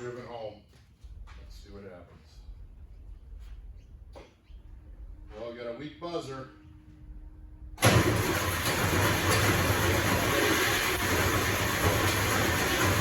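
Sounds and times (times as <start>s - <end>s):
diesel engine starting and running: 7.8s - 13.0s.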